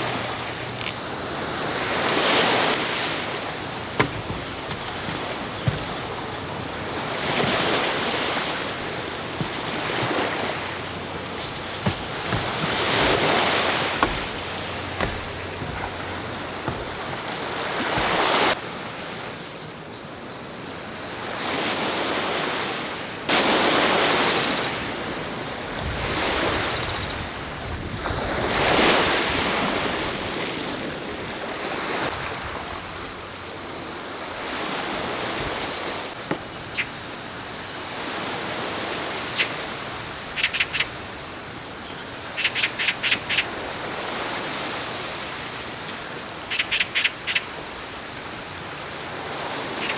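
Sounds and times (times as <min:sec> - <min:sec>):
sea waves washing onto shore: 0:00.0 - 0:19.2
wind: 0:00.0 - 0:49.9.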